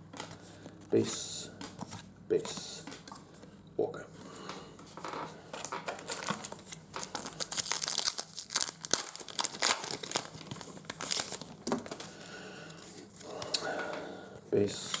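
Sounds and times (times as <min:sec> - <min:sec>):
wrapper tearing and crinkling: 0:05.6 - 0:12.0.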